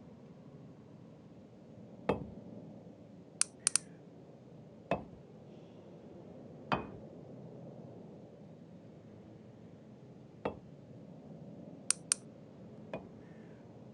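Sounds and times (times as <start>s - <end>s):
thin high clicks: 3.4s - 3.9s, 11.9s - 12.2s.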